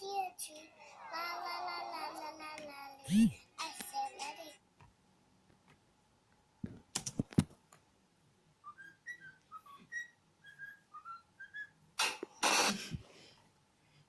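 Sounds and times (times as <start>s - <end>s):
bird whistling a tune: 8.6s - 11.8s.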